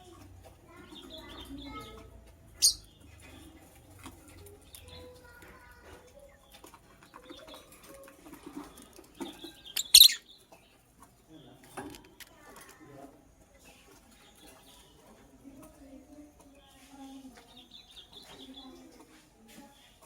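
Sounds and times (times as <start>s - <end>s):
faint soft chattering: 0.0s - 10.7s
lovebird shrill calls: 2.6s - 2.8s, 9.7s - 10.2s.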